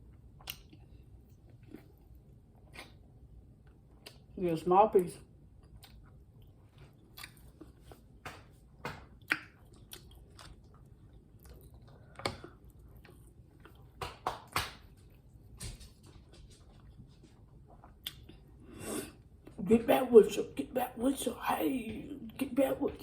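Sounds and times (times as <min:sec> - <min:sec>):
chewing and crunching food: 0:00.0 - 0:04.4, 0:05.0 - 0:18.6.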